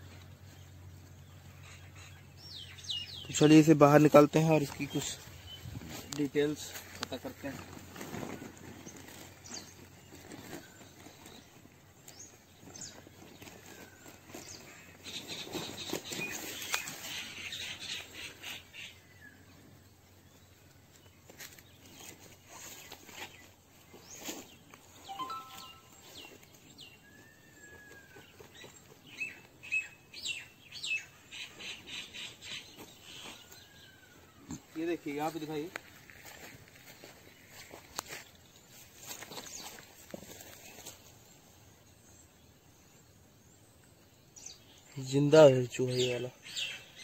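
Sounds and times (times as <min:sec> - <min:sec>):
wild birds chirping and calling: 0:00.2 - 0:47.0
whistled bird calls: 0:25.0 - 0:26.4.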